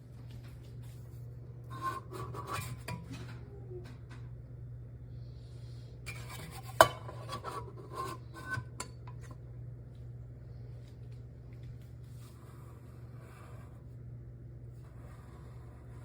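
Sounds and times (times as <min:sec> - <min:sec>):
steady low hum: 0:00.0 - 0:16.0
metal and dishes clinking: 0:06.1 - 0:09.4.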